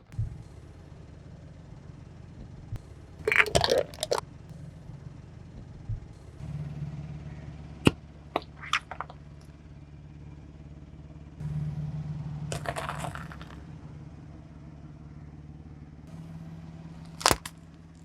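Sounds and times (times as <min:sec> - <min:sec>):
car engine humming: 0:00.0 - 0:18.0
tyre crushing crunchy objects: 0:03.3 - 0:04.2, 0:12.5 - 0:13.6, 0:17.0 - 0:18.0.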